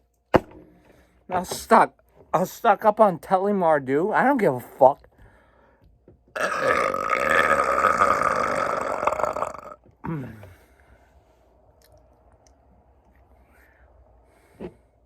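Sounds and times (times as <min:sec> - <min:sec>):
man burping: 0:06.4 - 0:10.6
vocal grunt: 0:06.4 - 0:10.6.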